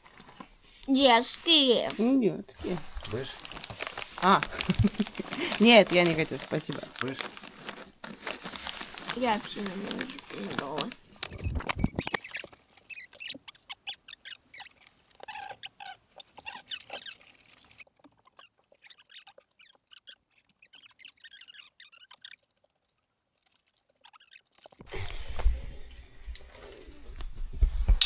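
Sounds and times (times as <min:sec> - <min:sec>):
person crunching snacks: 0:02.6 - 0:19.7.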